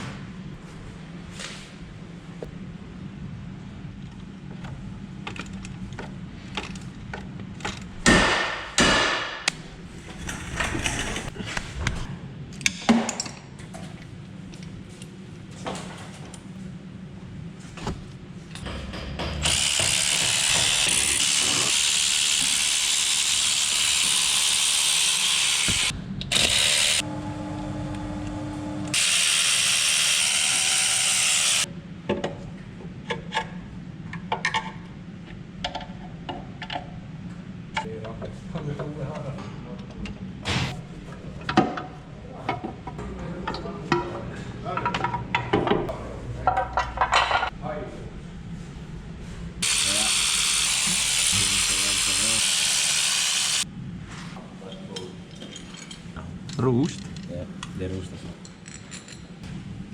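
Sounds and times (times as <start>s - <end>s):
power tool running: 19.3s - 31.7s, 49.6s - 53.6s.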